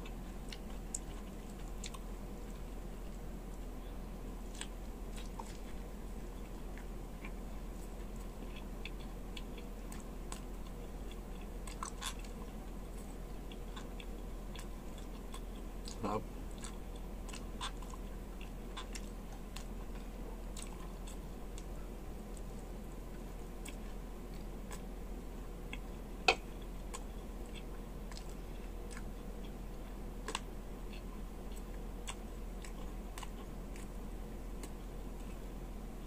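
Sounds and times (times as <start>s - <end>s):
close chewing: 0.0s - 24.9s, 25.7s - 35.5s.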